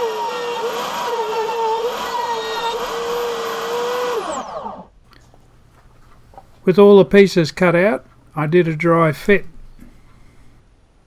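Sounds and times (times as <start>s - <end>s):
router motor whining: 0.0s - 6.7s.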